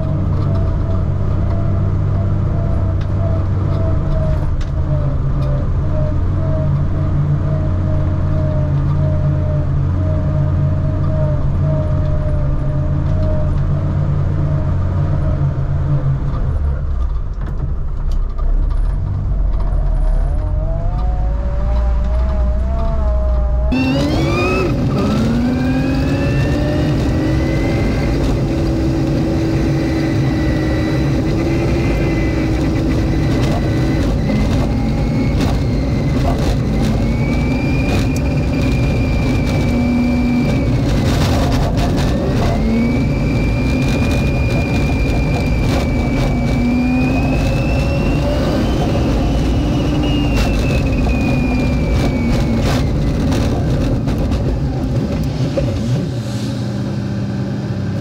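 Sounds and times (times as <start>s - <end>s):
car engine and drivetrain whine: 0.0s - 58.0s.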